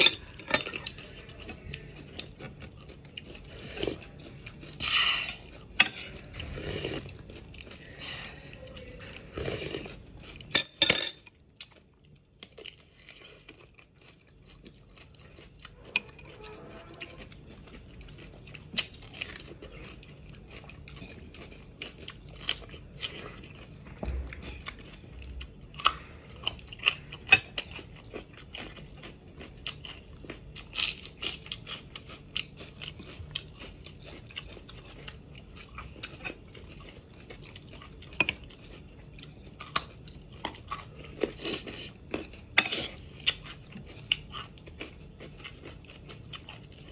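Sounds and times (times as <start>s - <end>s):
crunching raw vegetables: 11.5s - 46.9s.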